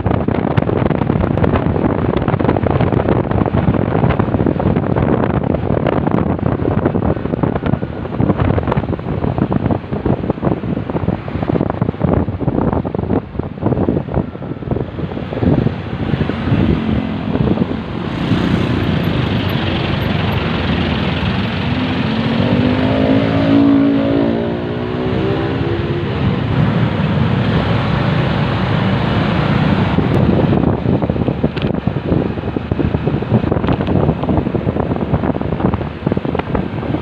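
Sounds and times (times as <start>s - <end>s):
wind buffeting microphone: 0.0s - 37.0s
motorcycle engine: 14.8s - 31.9s.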